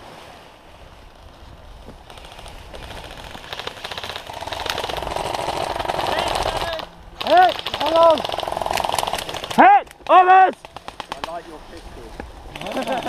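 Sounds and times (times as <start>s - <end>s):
airsoft guns firing full auto: 2.1s - 11.5s, 12.5s - 13.0s.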